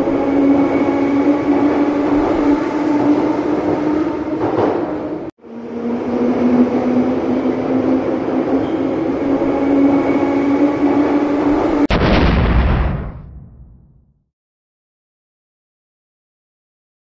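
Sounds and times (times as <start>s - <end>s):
train rumbling: 0.0s - 11.9s
loud deep crash: 11.9s - 14.0s.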